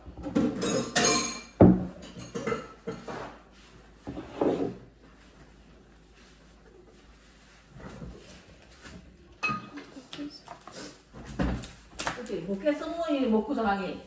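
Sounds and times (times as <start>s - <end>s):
dishes and utensils clinking: 0.3s - 3.4s, 9.4s - 10.0s.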